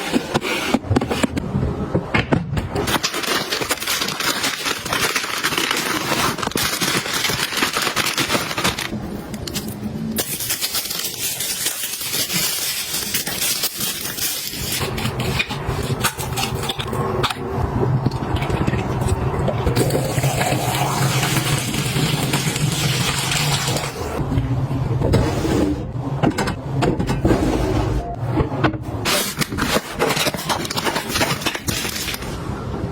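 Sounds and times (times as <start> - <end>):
crackling packaging being handled: 2.7 - 17.4, 29.0 - 32.4.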